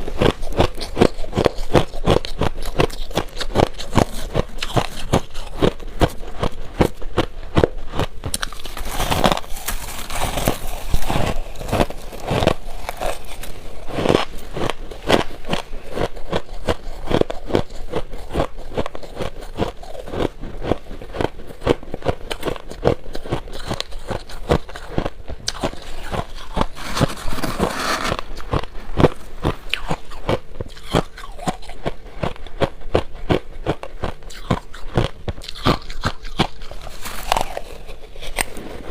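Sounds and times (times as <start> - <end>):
ice being chewed: 0.0 - 38.9.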